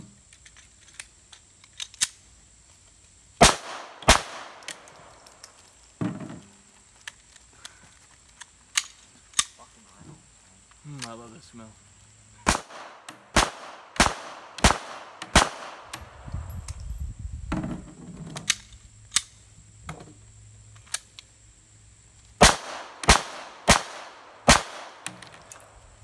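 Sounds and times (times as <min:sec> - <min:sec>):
gun handling noise: 0:00.3 - 0:02.2, 0:03.6 - 0:09.6, 0:22.7 - 0:25.9
gunshots: 0:03.4 - 0:05.1, 0:12.4 - 0:16.0, 0:22.4 - 0:25.4
sharp clicks: 0:10.9 - 0:11.2.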